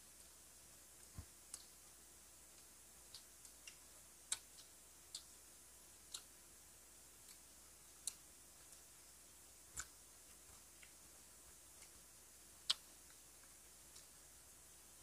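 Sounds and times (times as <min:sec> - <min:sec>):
low room hiss: 0:00.0 - 0:15.0
mouth clicks of chewing: 0:12.6 - 0:13.2.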